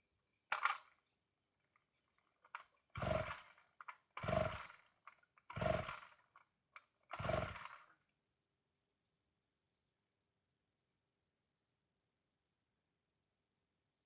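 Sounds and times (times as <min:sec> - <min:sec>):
chainsaw recoil starter pulls: 0:00.5 - 0:00.8, 0:02.4 - 0:08.0
chainsaw engine spinning briefly: 0:03.0 - 0:03.6, 0:04.2 - 0:04.9, 0:05.5 - 0:06.2, 0:07.1 - 0:07.9.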